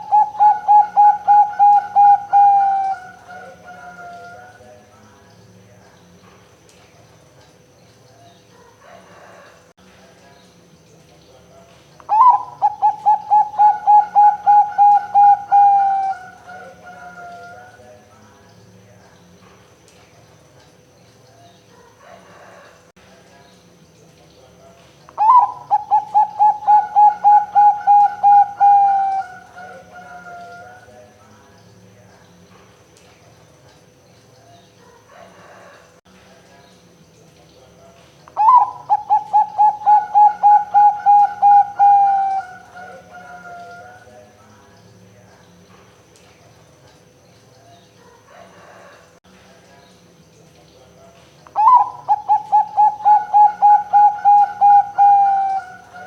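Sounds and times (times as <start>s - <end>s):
dove cooing: 0.0s - 4.7s, 12.1s - 17.9s, 25.2s - 31.0s, 38.4s - 44.1s, 51.5s - 56.0s.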